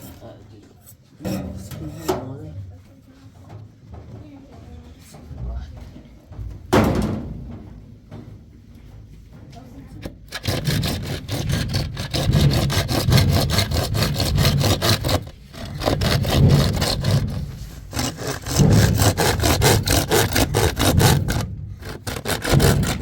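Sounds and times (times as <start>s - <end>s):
rhythmic scraping strokes: 10.2s - 23.0s.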